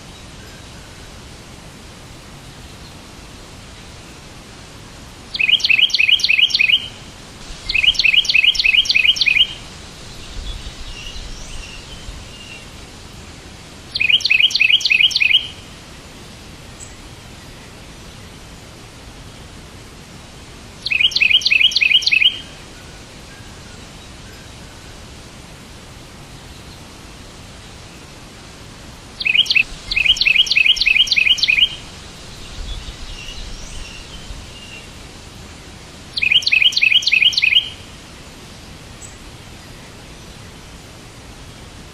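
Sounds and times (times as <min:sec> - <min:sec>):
steady hiss: 0:00.0 - 0:41.9
songbird trilling: 0:05.3 - 0:07.0, 0:07.6 - 0:12.6, 0:13.9 - 0:15.6, 0:20.8 - 0:22.5, 0:29.2 - 0:35.0, 0:36.2 - 0:37.9.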